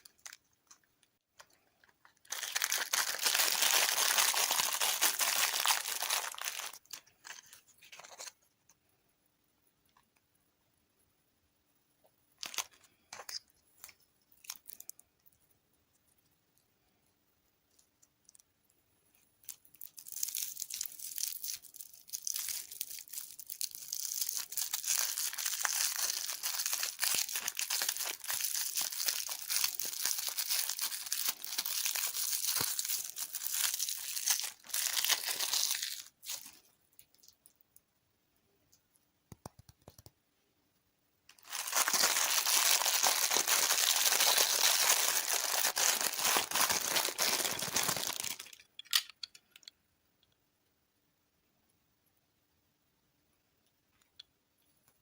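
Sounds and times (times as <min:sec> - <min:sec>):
plastic packaging crinkling: 0:00.0 - 0:00.9, 0:01.8 - 0:08.4, 0:12.4 - 0:13.4, 0:14.3 - 0:15.0, 0:19.4 - 0:37.4, 0:41.3 - 0:49.1.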